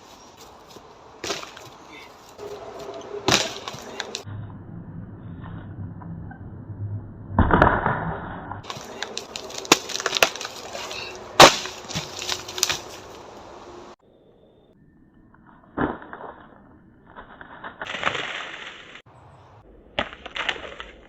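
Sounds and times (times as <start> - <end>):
strikes on dead tree trunk: 1.2 - 1.8, 8.6 - 13.1
wood cracking and splintering: 7.4 - 13.2, 17.1 - 19.0, 20.0 - 21.0.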